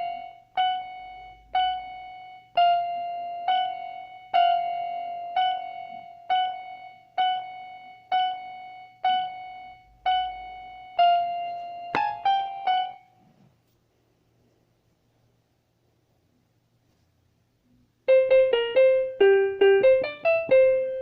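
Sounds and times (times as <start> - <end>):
electronic keyboard piano notes: 0.0 - 13.2, 18.0 - 21.0.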